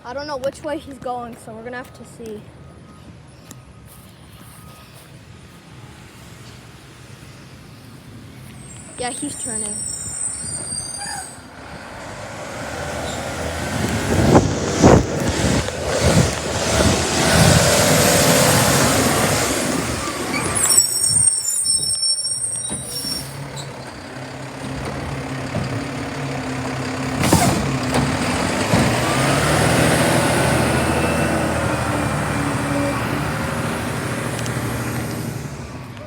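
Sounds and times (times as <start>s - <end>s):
diesel engine: 0.0s - 36.0s
brakes squealing: 7.2s - 36.0s.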